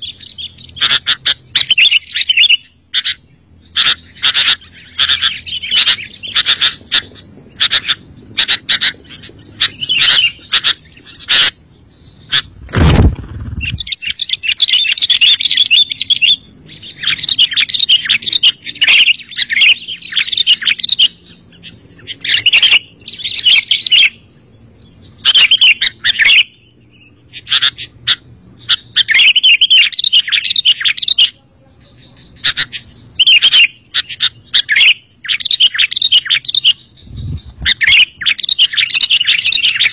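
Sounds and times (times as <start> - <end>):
bird singing and chattering: 0.0 - 39.9
loud thump: 12.6 - 13.9.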